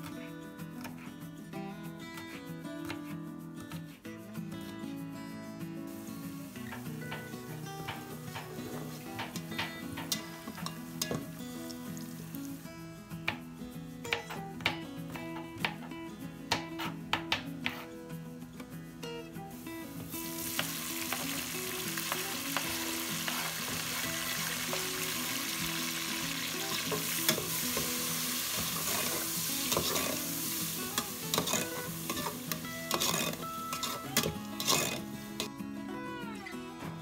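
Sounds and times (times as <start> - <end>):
vegetables sizzling in hot oil: 5.9 - 12.8, 19.4 - 35.5
spatula scraping a steel pot: 26.9 - 35.1.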